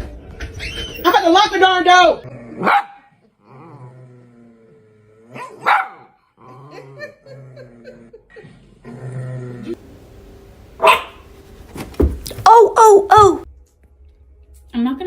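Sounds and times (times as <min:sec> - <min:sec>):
dog barking: 0:02.6 - 0:03.1, 0:05.4 - 0:06.2, 0:10.8 - 0:11.3
dog whining and moaning: 0:12.4 - 0:13.4.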